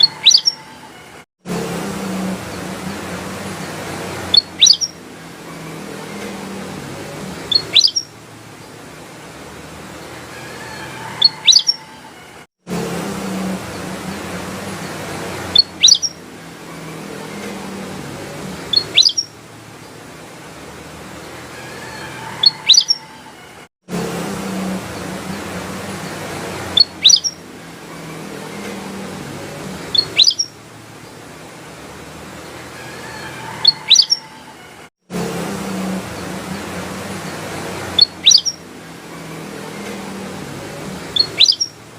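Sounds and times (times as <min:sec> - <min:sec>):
bulbul whistled calls: 0:00.0 - 0:00.8, 0:04.3 - 0:05.0, 0:07.4 - 0:08.1, 0:10.9 - 0:12.0, 0:15.5 - 0:16.2, 0:18.7 - 0:19.3, 0:22.0 - 0:23.1, 0:26.7 - 0:27.4, 0:29.9 - 0:30.5, 0:33.1 - 0:34.4, 0:38.0 - 0:38.6, 0:41.1 - 0:41.8
bird calling sharp high notes: 0:00.0 - 0:00.9, 0:38.0 - 0:38.6, 0:41.1 - 0:41.7.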